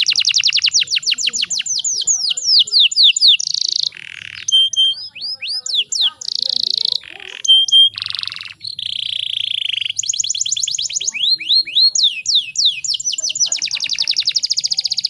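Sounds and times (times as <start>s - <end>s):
canary singing: 0.0s - 15.0s.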